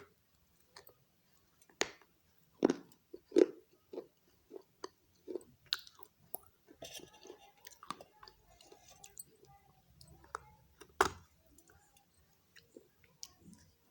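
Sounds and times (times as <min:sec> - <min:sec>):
chewing and crunching clay pieces: 0:01.6 - 0:10.5.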